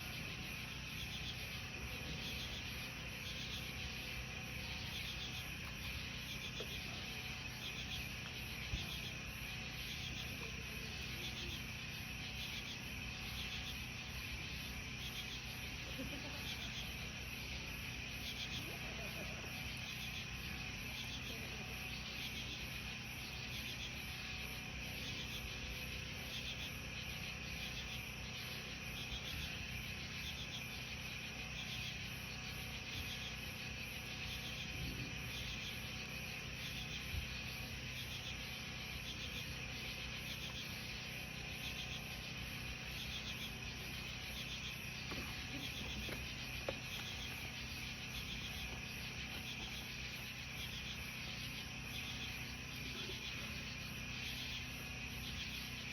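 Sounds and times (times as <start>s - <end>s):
crickets and insects trilling: 0.0s - 55.9s
pulsing insect call: 0.0s - 55.9s.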